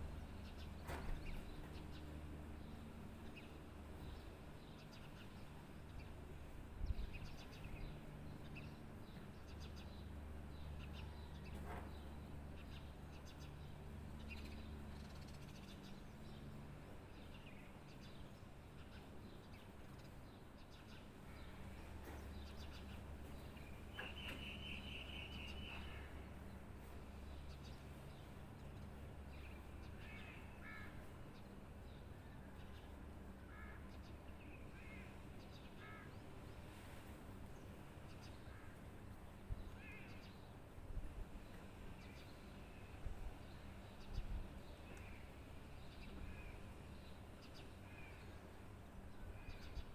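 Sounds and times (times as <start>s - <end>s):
birds calling: 10.6s - 40.6s.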